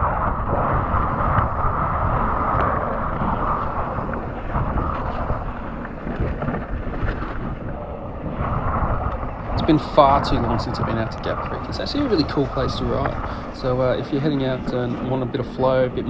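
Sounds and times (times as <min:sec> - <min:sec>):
bike tyres rumbling on dirt: 0:00.0 - 0:16.0
wind buffeting microphone: 0:00.0 - 0:16.0.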